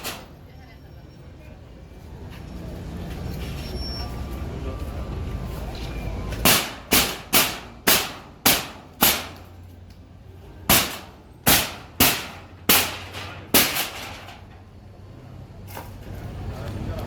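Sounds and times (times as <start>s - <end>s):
heavy hammer strikes ringing: 6.4s - 9.5s, 10.7s - 14.0s.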